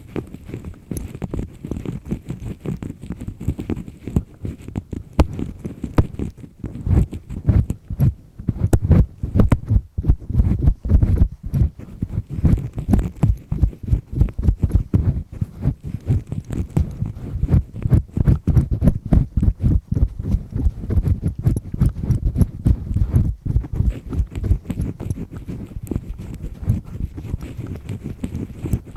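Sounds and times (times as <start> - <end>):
earpick scraping inside ear: 0.0 - 28.9.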